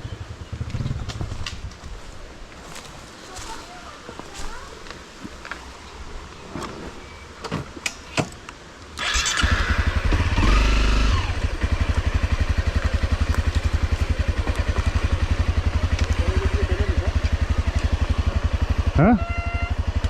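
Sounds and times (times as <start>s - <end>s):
motorcycle engine idling: 0.0s - 2.8s, 9.0s - 20.0s.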